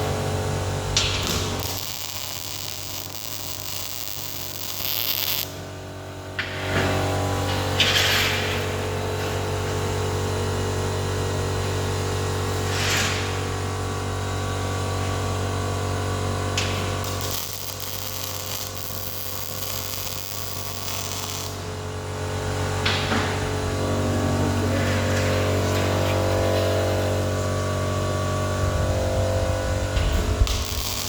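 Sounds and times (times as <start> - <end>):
welding arc crackling: 0.0 - 5.7, 16.1 - 22.8, 28.5 - 31.0
welding machine hum: 0.0 - 31.0.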